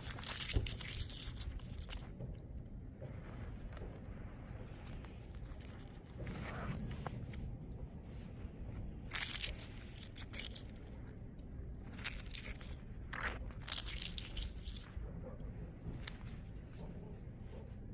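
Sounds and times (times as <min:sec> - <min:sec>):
dry leaves crunching: 0:09.1 - 0:10.9, 0:12.0 - 0:14.9.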